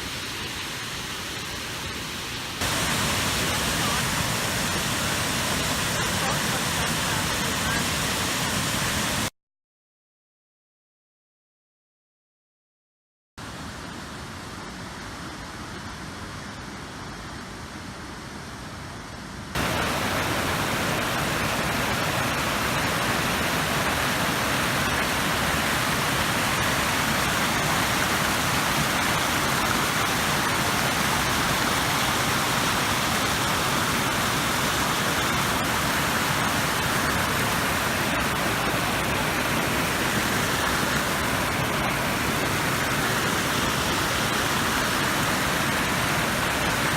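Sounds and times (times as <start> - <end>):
waterfall rushing: 0.0 - 9.3, 19.6 - 46.9.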